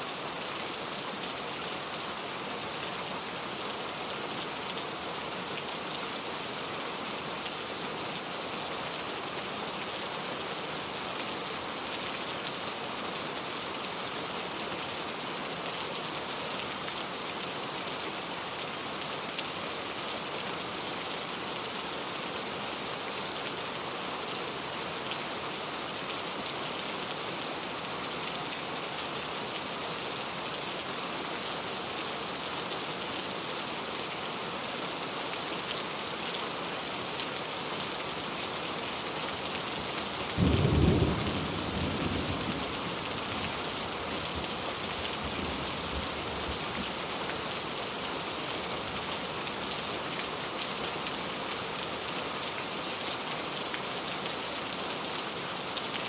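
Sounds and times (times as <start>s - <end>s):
rain pattering on a surface: 0.1s - 56.0s.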